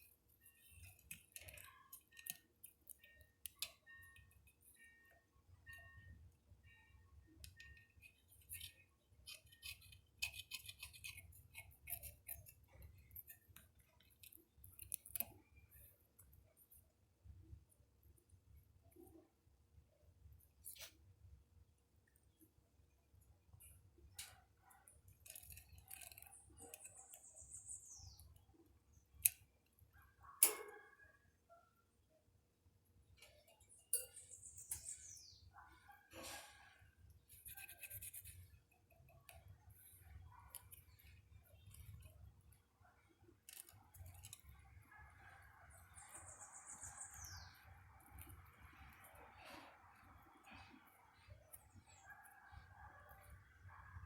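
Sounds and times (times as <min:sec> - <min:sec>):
pet gnawing wooden stick: 0:00.0 - 0:06.0, 0:07.3 - 0:17.0, 0:23.5 - 0:29.7, 0:36.2 - 0:54.0.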